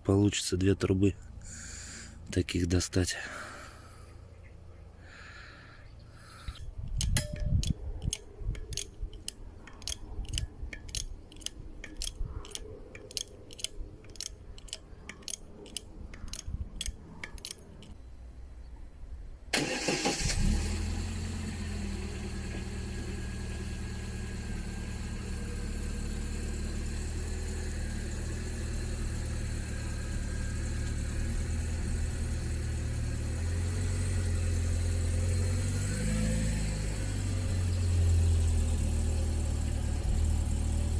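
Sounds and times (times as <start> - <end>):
jack clicking: 6.8 - 18.0
car engine starting and idling: 19.5 - 40.9.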